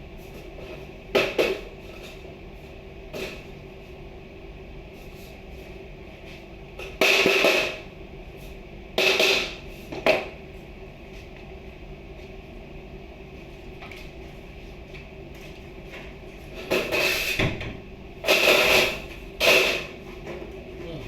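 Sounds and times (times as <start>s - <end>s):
steady hum: 0.0s - 21.0s
clattering scraping noises: 15.4s - 17.4s, 18.2s - 21.0s.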